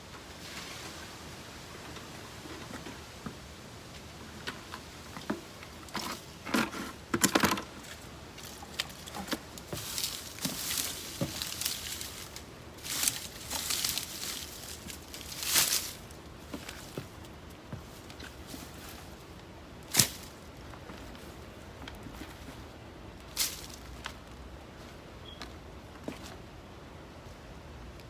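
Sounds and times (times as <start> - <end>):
digging through potting soil: 5.2 - 24.9.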